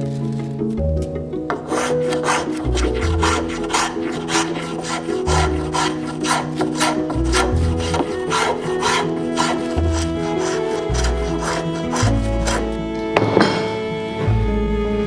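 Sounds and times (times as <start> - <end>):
rasp strokes on hardwood: 1.5 - 12.8
background music with bass line: 9.6 - 15.0.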